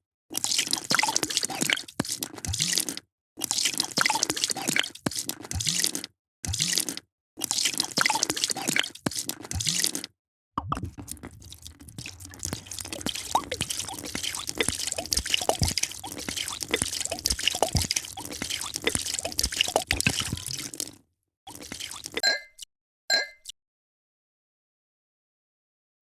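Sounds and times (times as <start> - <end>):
drink being poured: 10.6 - 22.2.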